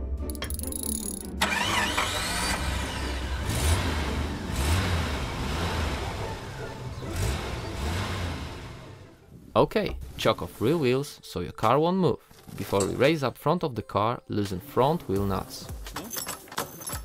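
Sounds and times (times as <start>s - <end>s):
car engine revving: 1.4s - 9.3s.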